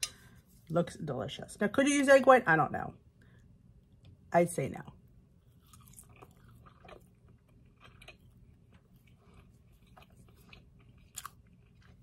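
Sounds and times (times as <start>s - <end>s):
faint mouth clicks chewing: 5.6s - 12.0s.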